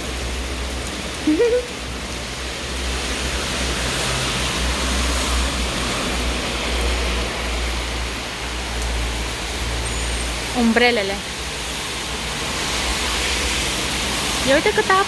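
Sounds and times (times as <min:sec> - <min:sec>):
heavy rain on pavement: 0:00.0 - 0:15.0.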